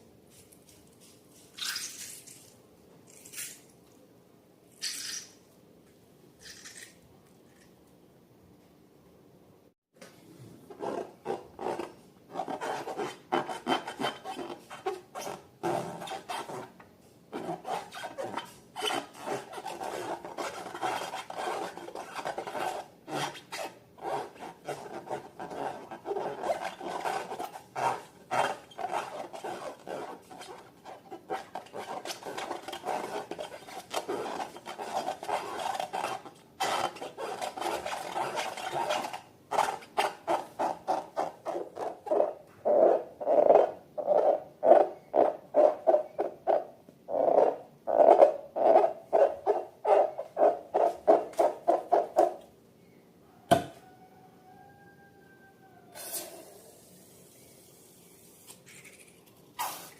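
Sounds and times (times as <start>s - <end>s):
slime being mixed by hand: 17.4s - 42.4s.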